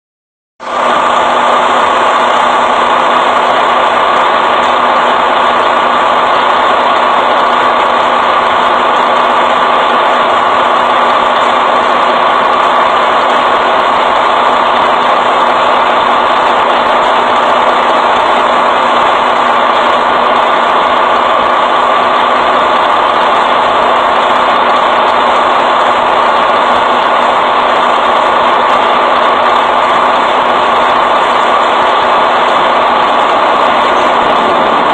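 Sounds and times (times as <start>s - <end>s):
truck engine idling: 0.6s - 34.9s.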